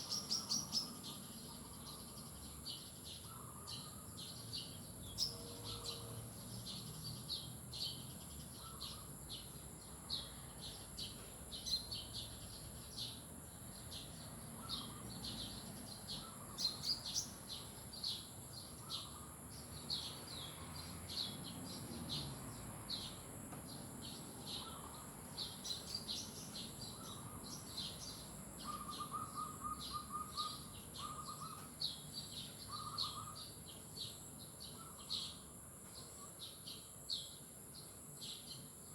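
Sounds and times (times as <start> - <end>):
songbirds chirping: 0.0 - 38.9
low rapid bird trill: 24.0 - 37.4.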